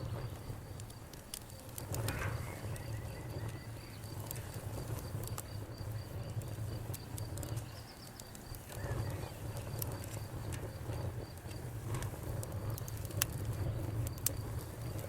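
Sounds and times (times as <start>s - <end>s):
cricket chirping: 0.0s - 11.7s
campfire crackling: 0.0s - 15.0s.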